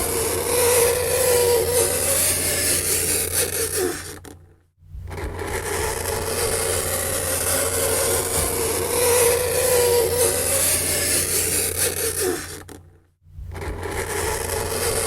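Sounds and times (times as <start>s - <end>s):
fingernails scraping chalkboard: 5.2s - 12.8s.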